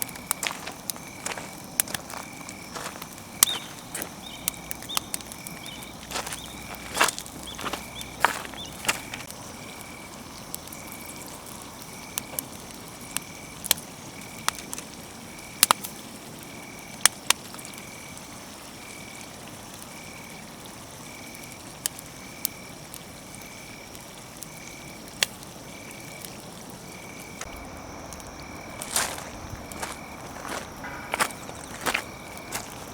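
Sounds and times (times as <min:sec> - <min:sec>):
campfire crackling and popping: 0:00.0 - 0:32.9
pulsing high call: 0:27.5 - 0:32.9.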